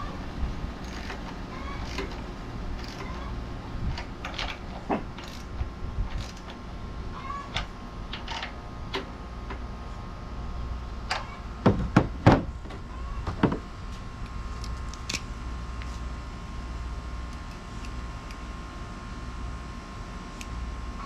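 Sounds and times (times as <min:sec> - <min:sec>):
low steady hum: 0:00.0 - 0:21.0
tools and metal parts clicking: 0:00.8 - 0:06.6, 0:07.5 - 0:08.6.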